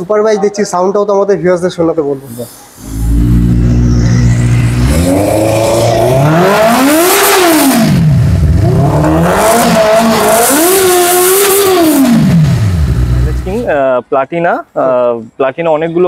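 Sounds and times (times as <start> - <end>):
motorcycle engine revving: 2.7 - 13.8.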